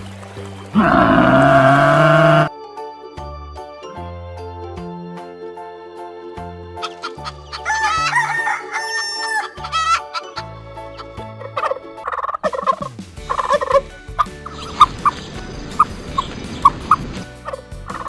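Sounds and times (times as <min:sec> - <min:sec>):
rooster crowing: 0:00.8 - 0:02.5, 0:07.6 - 0:10.0
rooster clucking: 0:11.4 - 0:13.8
music with low bass line: 0:12.7 - 0:18.0.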